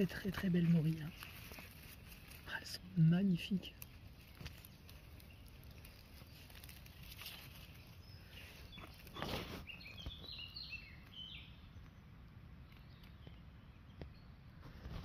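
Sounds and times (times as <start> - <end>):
plants rustling: 0.0 - 11.4
small bird chirping: 0.0 - 14.6.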